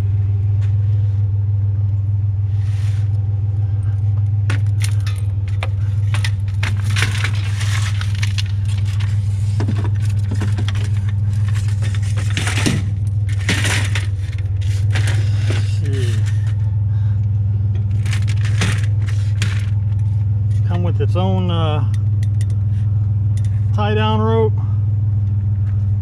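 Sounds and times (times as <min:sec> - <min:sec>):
truck engine idling: 0:00.0 - 0:26.0
metal rods clinking and rattling: 0:04.5 - 0:16.6, 0:17.8 - 0:20.8, 0:21.9 - 0:22.6.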